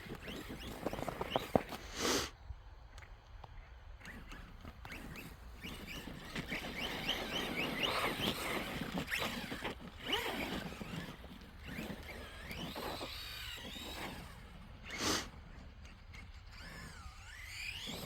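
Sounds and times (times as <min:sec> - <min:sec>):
electric toy motor whining: 0:00.0 - 0:02.3, 0:04.0 - 0:18.0.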